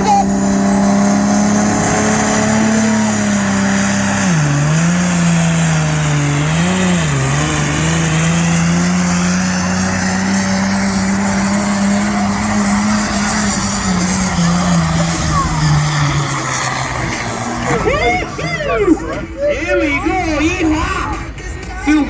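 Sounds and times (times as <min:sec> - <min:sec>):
high turbo whistle: 0:00.0 - 0:09.0
diesel tractor engine at full throttle: 0:00.0 - 0:22.0.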